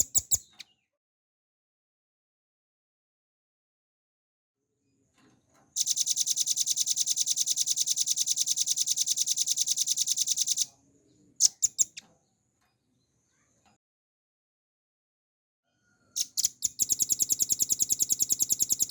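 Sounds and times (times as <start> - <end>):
bird trilling: 16.2 - 18.9.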